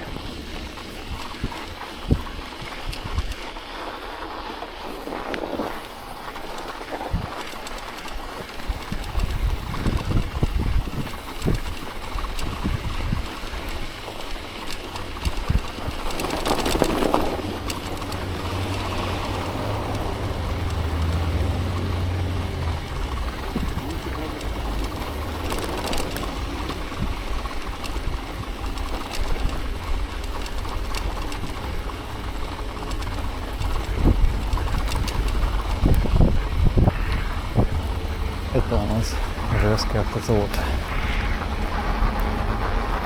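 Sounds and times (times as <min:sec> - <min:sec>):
wind rumbling on microphone: 0:00.0 - 0:43.0
steady low hum: 0:15.1 - 0:43.0.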